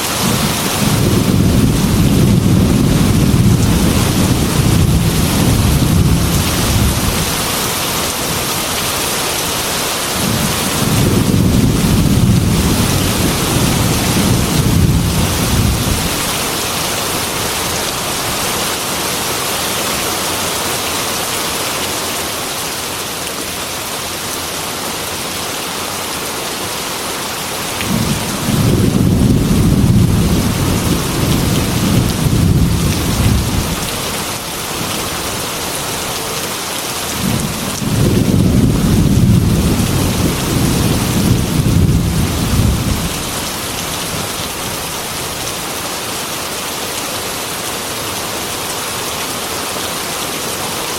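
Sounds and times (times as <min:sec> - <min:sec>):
heavy rain on a window: 0:00.0 - 0:50.9
rolling thunder: 0:00.2 - 0:07.5, 0:10.2 - 0:16.6, 0:27.8 - 0:34.0, 0:37.2 - 0:44.6.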